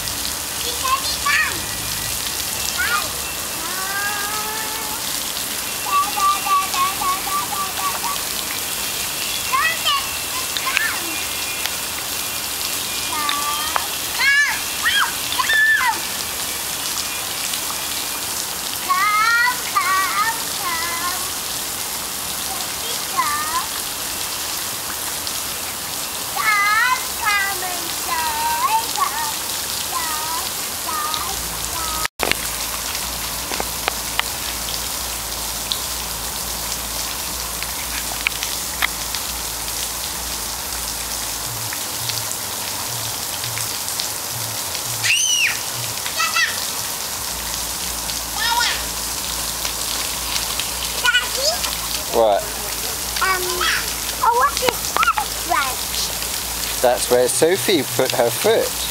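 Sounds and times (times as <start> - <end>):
rain pattering on ground: 0.0 - 58.9
child calling high-pitched: 0.6 - 1.7, 2.7 - 5.2, 5.8 - 8.4, 9.5 - 11.3, 13.1 - 16.1, 18.8 - 21.4, 22.4 - 23.8, 26.4 - 32.1, 44.9 - 46.8, 48.3 - 49.0, 51.0 - 51.8, 53.2 - 56.2.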